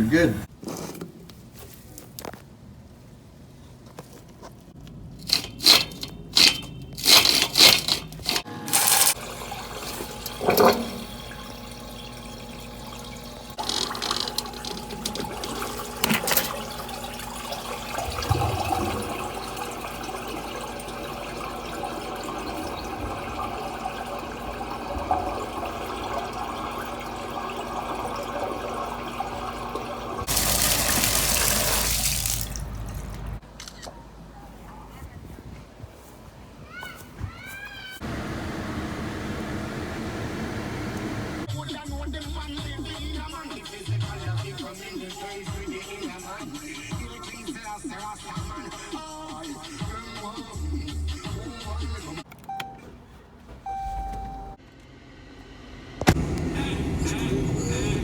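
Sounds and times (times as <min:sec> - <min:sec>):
water running in pipes: 0:05.2 - 0:33.4.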